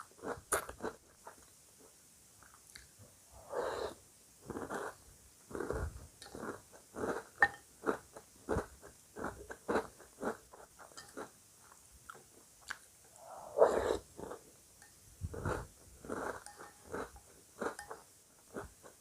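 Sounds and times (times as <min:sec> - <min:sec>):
crunchy chewing of cereal: 0:00.0 - 0:01.5, 0:02.4 - 0:11.4, 0:15.3 - 0:19.0.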